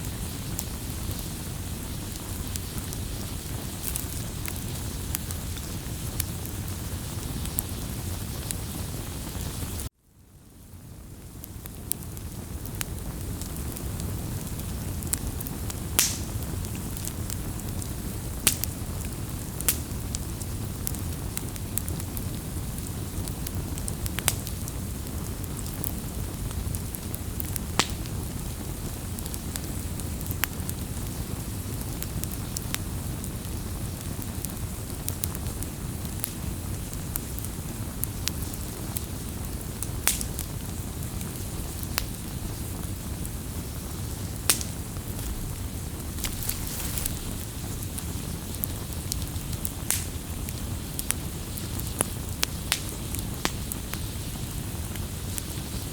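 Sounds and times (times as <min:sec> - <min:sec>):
burning wood popping: 0:00.0 - 0:09.8, 0:11.5 - 0:55.9
campfire rumble: 0:00.0 - 0:55.9.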